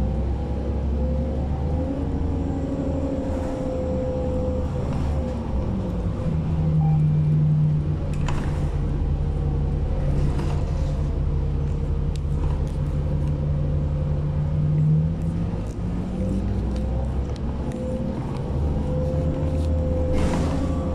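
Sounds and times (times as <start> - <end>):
bus engine rumble: 0.0 - 20.9.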